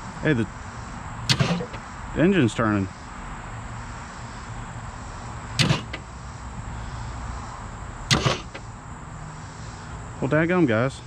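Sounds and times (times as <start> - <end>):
starter motor cranking engine: 1.2 - 1.9, 5.6 - 6.2, 8.1 - 8.7.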